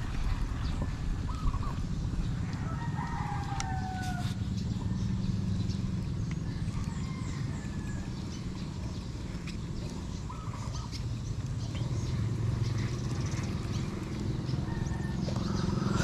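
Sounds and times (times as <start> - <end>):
rooster crowing: 2.5 - 4.4, 6.4 - 8.2, 14.5 - 16.0.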